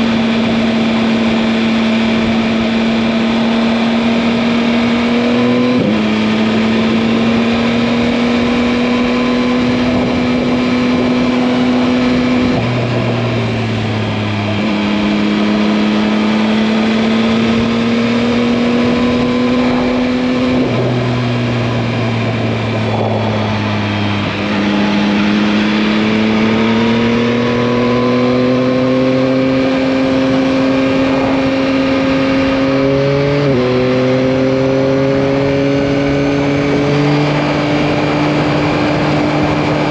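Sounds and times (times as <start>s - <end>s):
motorcycle engine under throttle: 0.0s - 39.9s
wind rushing: 5.8s - 39.9s.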